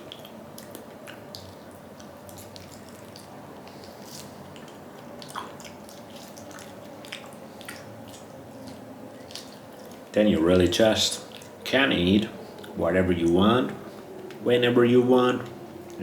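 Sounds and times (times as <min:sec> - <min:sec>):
wet chewing of raw meat: 0:00.0 - 0:10.2, 0:11.1 - 0:12.8.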